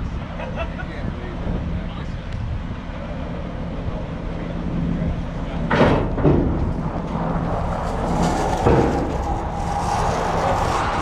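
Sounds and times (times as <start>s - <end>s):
heavy machinery engine running: 1.1s - 11.0s
loud knocks: 5.7s - 7.2s.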